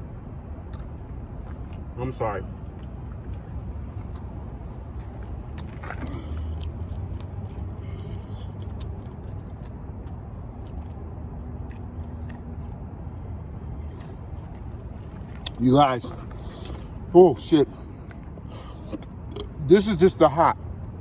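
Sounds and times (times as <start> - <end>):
steady low hum: 0.0 - 21.0
person chewing crunchy food: 0.6 - 2.0, 2.6 - 17.1.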